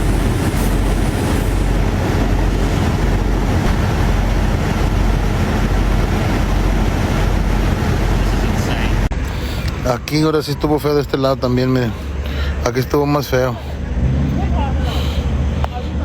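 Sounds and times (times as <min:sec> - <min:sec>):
deep rumble: 0:00.0 - 0:09.2
loud rushing noise: 0:00.0 - 0:09.2.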